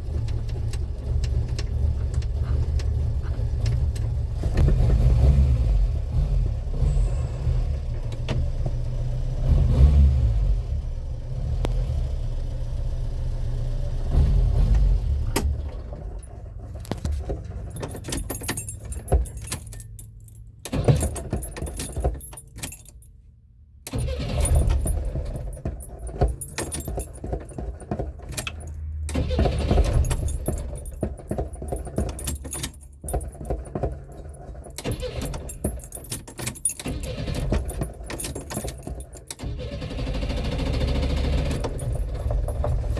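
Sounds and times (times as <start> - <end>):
light metallic jingling: 16.1 - 23.3, 23.9 - 39.5, 41.0 - 42.9
car engine running rough and revving: 23.9 - 42.9.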